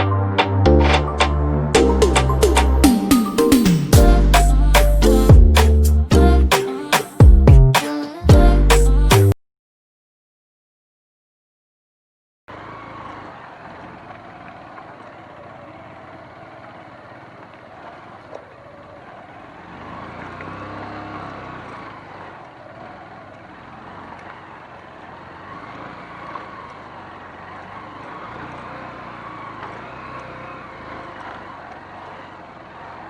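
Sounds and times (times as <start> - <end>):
vehicle engine running: 12.5 - 33.0.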